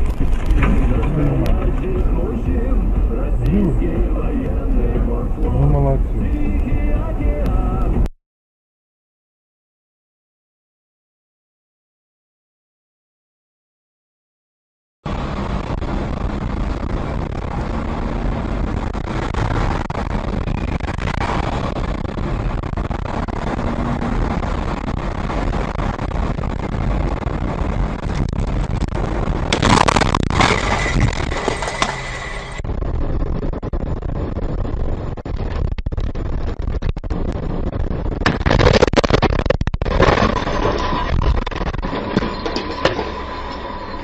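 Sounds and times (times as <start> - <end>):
car road and engine noise: 0.0 - 8.1, 15.0 - 44.0
loud bursts of noise: 15.1 - 44.0.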